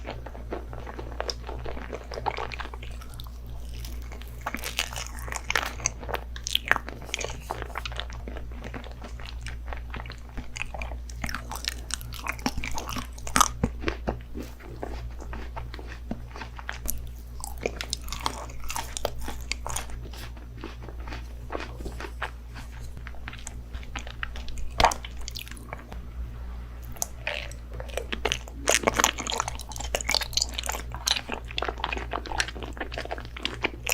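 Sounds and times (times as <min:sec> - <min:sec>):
chewing crunchy food: 0:00.0 - 0:26.0, 0:26.8 - 0:33.9.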